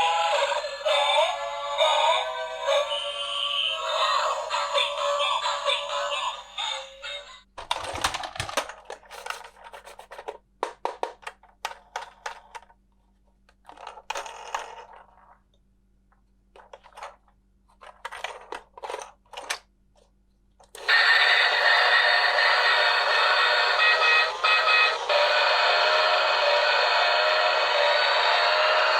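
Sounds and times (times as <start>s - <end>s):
tinny electronic sung tune: 20.9s - 28.9s.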